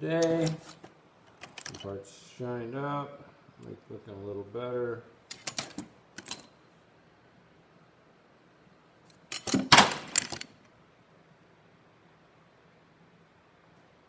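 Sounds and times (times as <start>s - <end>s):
small metal parts clinking: 0.2s - 1.9s, 5.3s - 6.6s, 9.1s - 10.5s.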